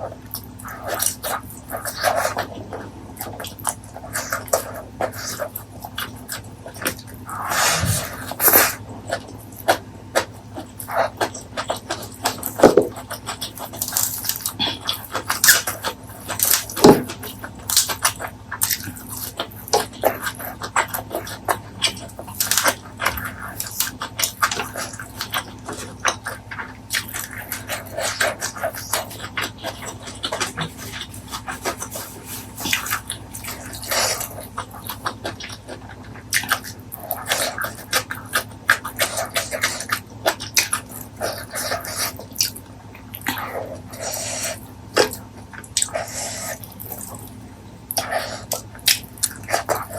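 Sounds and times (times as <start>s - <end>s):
person chewing: 0.0s - 49.9s.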